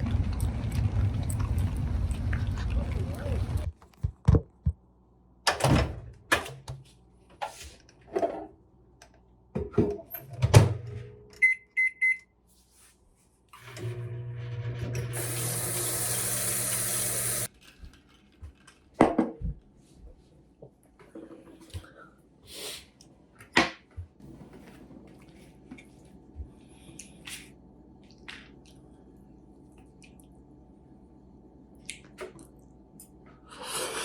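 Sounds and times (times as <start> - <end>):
appliance hum: 0.0 - 3.8, 13.6 - 17.5.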